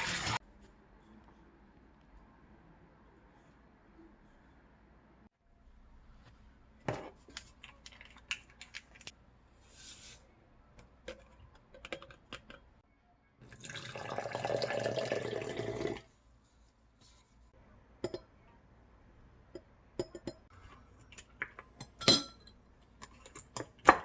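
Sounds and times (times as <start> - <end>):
water running from a tap: 0.0 - 0.4.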